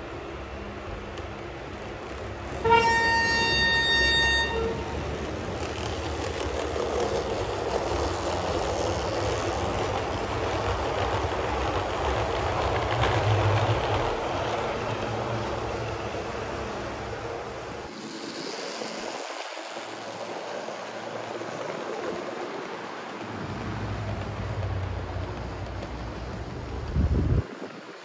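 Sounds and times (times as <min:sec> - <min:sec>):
train passing with rumble: 0:00.0 - 0:28.0
train horn blast: 0:02.6 - 0:05.3.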